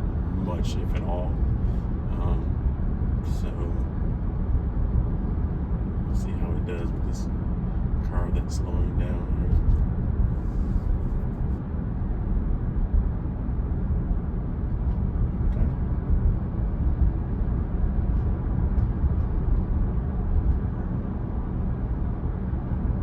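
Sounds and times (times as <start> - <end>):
road and tyre rumble: 0.0 - 23.0.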